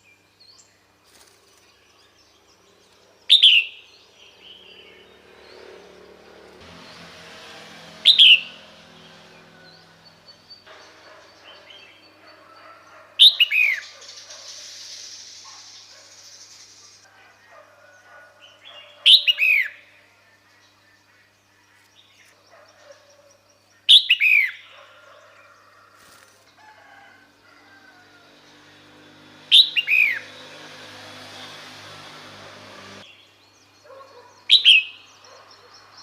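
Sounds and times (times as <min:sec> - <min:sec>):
bird calls sweeping down: 0:13.2 - 0:17.0.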